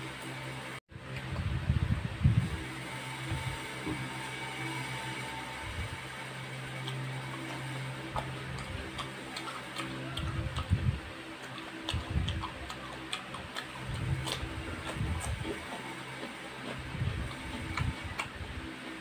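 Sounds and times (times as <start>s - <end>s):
soft low chewing thuds: 6.8s - 18.7s.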